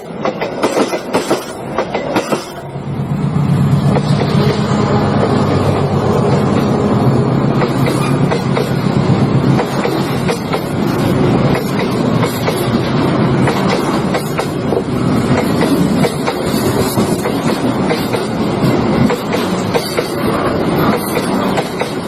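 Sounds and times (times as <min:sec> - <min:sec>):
train wheels rumbling: 0:00.0 - 0:22.0
wheels clacking over rail joints: 0:09.5 - 0:22.0.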